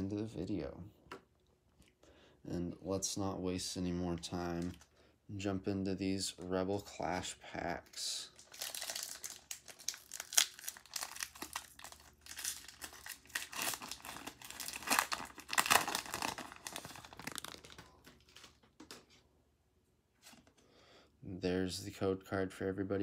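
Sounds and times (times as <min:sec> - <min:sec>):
foil wrapper crinkling: 0:08.4 - 0:18.7.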